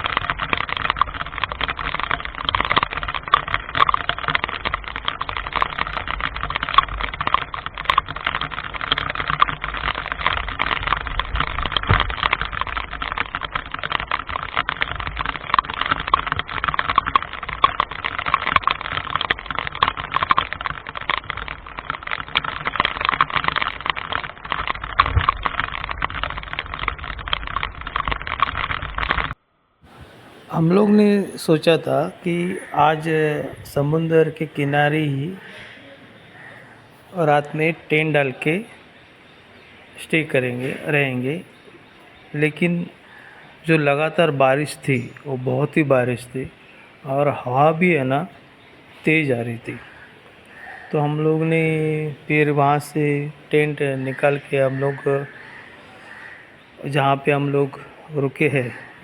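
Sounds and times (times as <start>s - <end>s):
heavy rain pattering: 0.0s - 59.0s.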